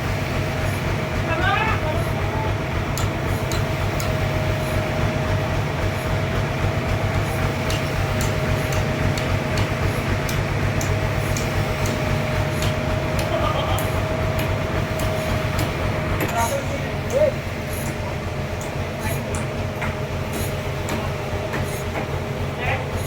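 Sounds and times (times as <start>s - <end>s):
machine whine: 0.0s - 23.0s
sawmill machinery humming: 0.0s - 23.0s
sharp ticks: 2.9s - 5.1s, 5.8s - 15.8s.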